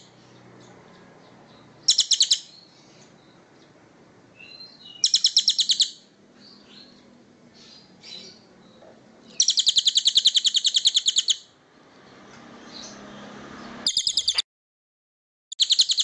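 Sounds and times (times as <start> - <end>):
bird trill: 0.0 - 3.4, 4.4 - 7.0, 7.6 - 11.5, 13.6 - 14.4, 15.5 - 16.0.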